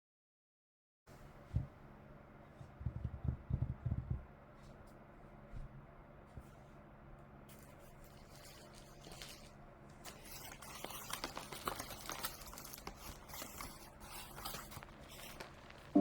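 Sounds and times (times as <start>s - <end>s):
paper and packaging rustling: 7.5s - 16.0s
small ticks and scrapes: 7.5s - 16.0s.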